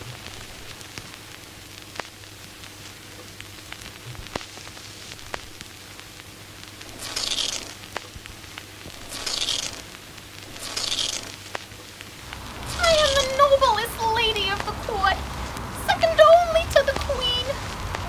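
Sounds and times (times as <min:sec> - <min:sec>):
low hum: 0:00.0 - 0:16.0
crackling clicks: 0:00.0 - 0:18.0
short bursts of hiss: 0:06.9 - 0:08.1, 0:08.9 - 0:13.8.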